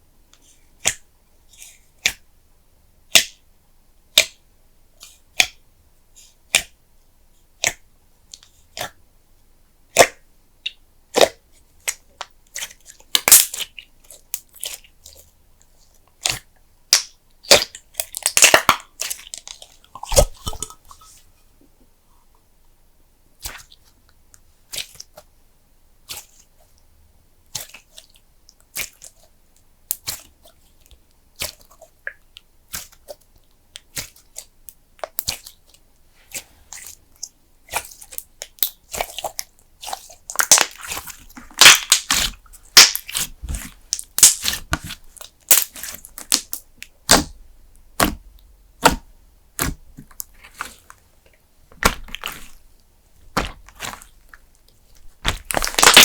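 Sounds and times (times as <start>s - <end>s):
slime sticky clicks and pops: 41.6s - 43.2s, 43.9s - 47.4s, 55.2s - 56.0s.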